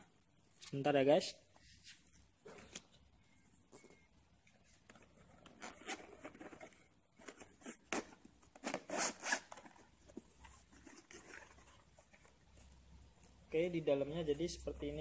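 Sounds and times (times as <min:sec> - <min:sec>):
zipper pulled open: 0:05.5 - 0:06.7, 0:07.6 - 0:09.7.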